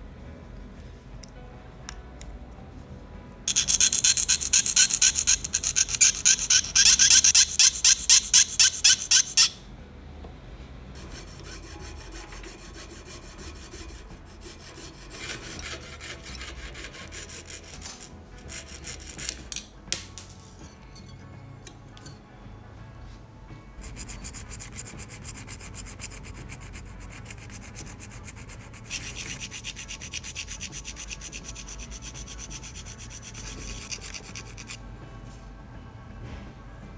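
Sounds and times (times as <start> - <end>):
abrasive scraping by hand: 3.5 - 9.6, 11.0 - 19.6, 23.8 - 34.8.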